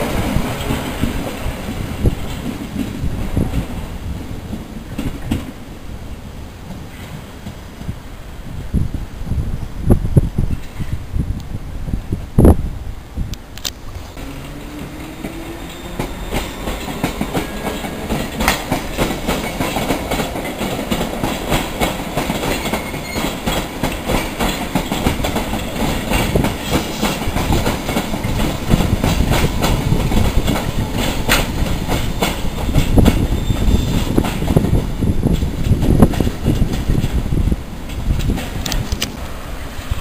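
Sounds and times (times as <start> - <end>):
wheels clickety-clack over joints: 4.5 - 5.6, 14.2 - 39.2
wheel and rail running noise: 13.6 - 40.0.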